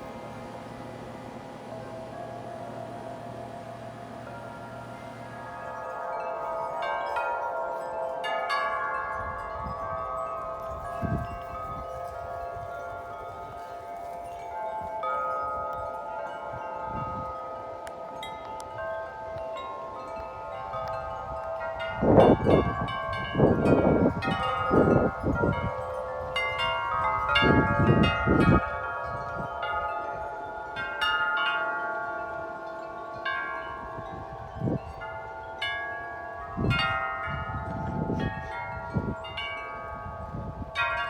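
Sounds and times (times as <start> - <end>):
metal wind chimes ringing: 0.0 - 41.0
wind buffeting microphone: 9.0 - 17.6, 20.0 - 30.3, 33.6 - 35.4, 36.2 - 41.0.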